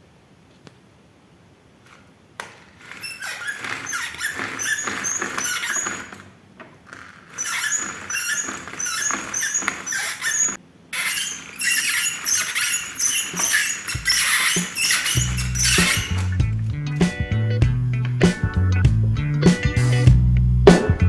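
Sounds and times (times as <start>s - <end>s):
roller blind squeaking: 1.9s - 17.0s.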